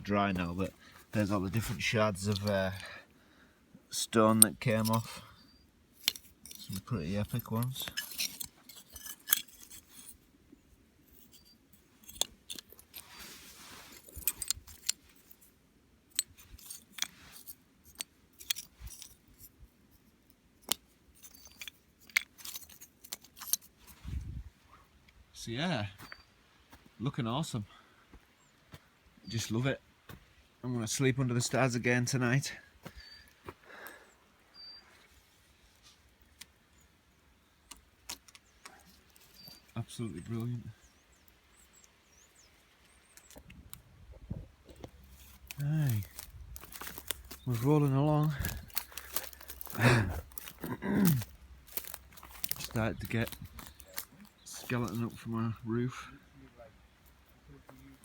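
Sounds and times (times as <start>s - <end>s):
small hard objects clinking: 6.0s - 10.2s, 11.1s - 15.5s, 16.1s - 19.5s, 20.6s - 23.8s, 45.0s - 55.2s.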